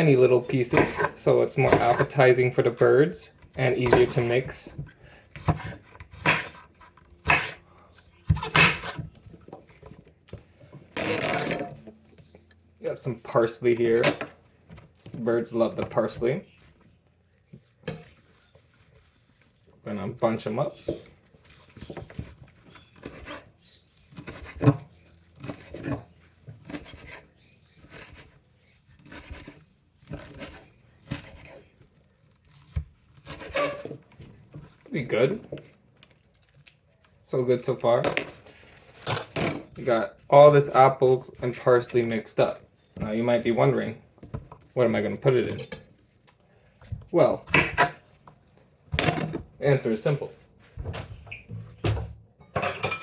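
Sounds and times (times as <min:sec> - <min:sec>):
knife cutting apple on board: 0:00.6 - 0:02.2, 0:03.8 - 0:04.5, 0:05.3 - 0:07.6, 0:21.8 - 0:31.7, 0:32.6 - 0:34.0.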